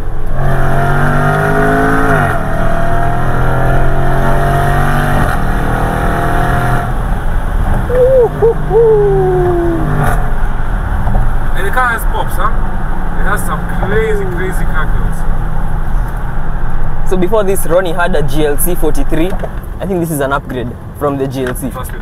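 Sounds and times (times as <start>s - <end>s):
car engine accelerating hard: 0.2s - 16.6s
higher wavering tone sliding down: 7.9s - 10.1s.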